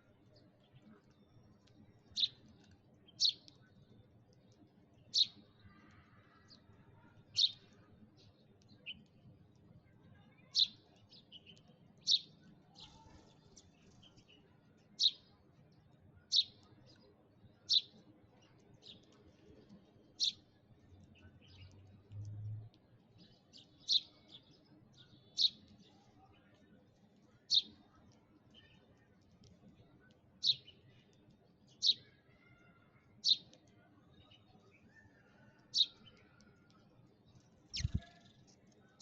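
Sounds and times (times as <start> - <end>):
sparrow chirping: 2.0 - 3.7, 5.0 - 5.5, 7.2 - 9.1, 10.5 - 14.4, 15.0 - 15.3, 16.2 - 17.0, 17.6 - 19.2, 20.2 - 22.2, 23.2 - 25.8, 27.4 - 27.8, 33.2 - 33.5, 35.7 - 36.2, 37.6 - 39.0.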